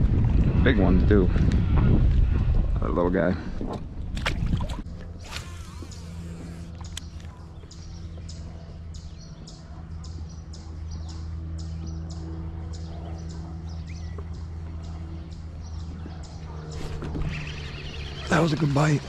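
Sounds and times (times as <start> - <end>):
low motor-like hum: 0.0 - 19.0
small bird chirping: 5.2 - 19.0.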